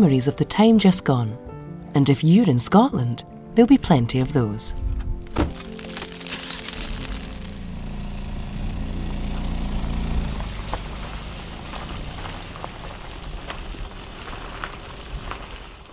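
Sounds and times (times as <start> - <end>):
car engine rumble: 4.7 - 15.9
light ticks and crackles: 10.4 - 15.9.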